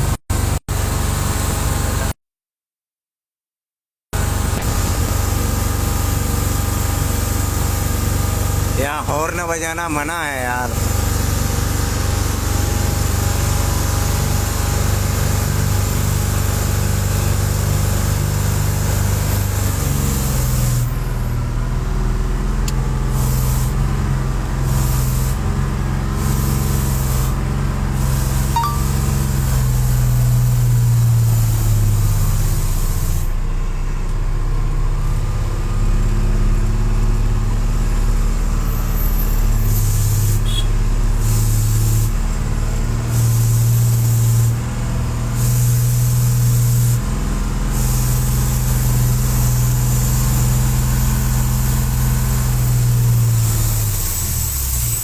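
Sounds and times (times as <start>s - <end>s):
truck engine running: 4.2s - 54.8s.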